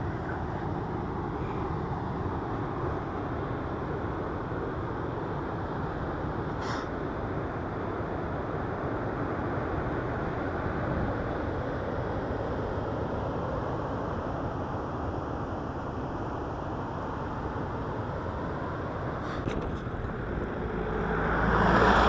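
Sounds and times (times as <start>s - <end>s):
bike rolling noise: 19.3s - 22.0s.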